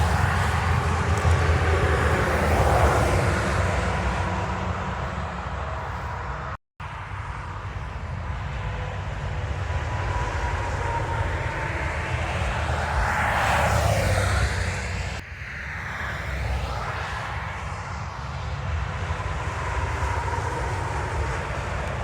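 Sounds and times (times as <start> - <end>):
truck passing close: 0.0 - 15.2
highway traffic rumble: 0.0 - 22.0.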